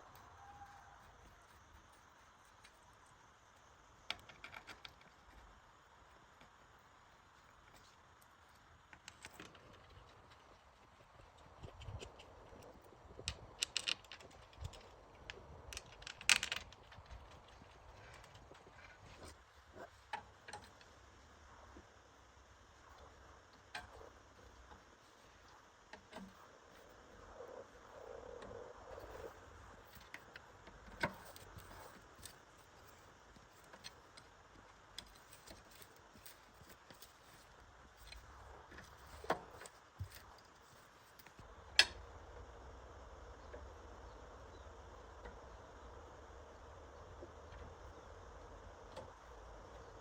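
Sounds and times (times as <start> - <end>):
small tools clicking and knocking: 4.0 - 5.6, 11.7 - 19.4.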